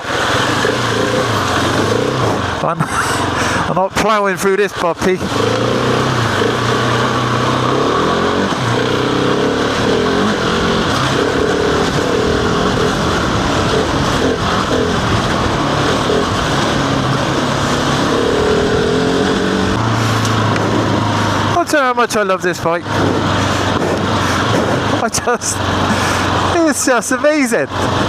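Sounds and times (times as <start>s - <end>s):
motorcycle engine running: 0.0s - 28.0s
steady rushing noise: 0.0s - 28.0s.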